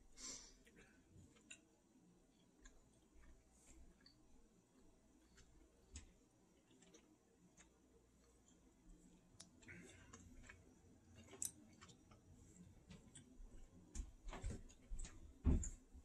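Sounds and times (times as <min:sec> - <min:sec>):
chewing candy: 0:05.2 - 0:13.4.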